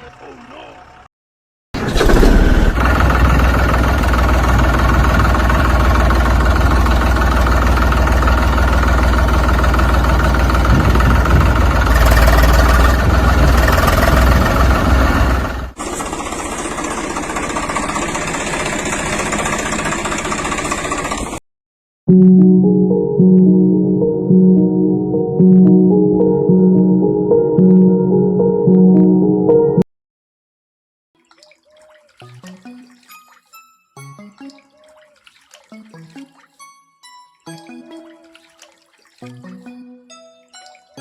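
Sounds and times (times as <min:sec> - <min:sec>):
engine running: 0:01.8 - 0:21.4.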